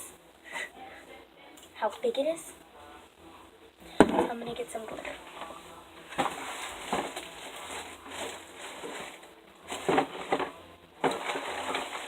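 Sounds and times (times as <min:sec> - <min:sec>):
objects rustling: 0:03.9 - 0:12.0.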